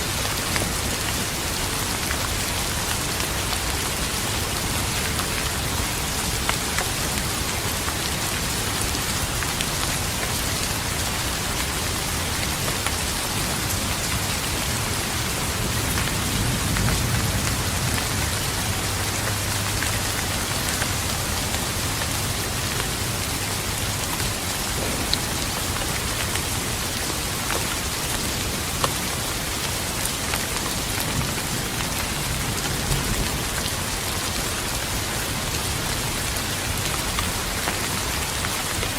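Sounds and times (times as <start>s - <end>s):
steady rain falling: 0.0s - 38.9s
thunder rumbling: 13.8s - 23.0s.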